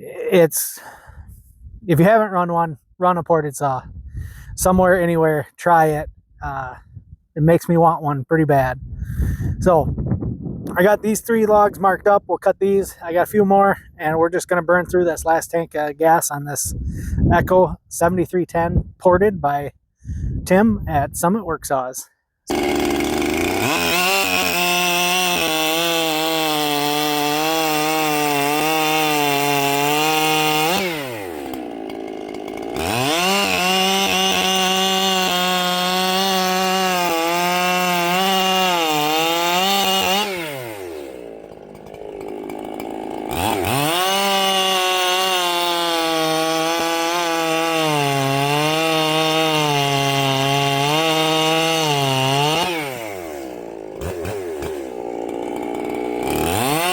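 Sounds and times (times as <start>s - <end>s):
chainsaw cutting logs: 22.4s - 56.9s.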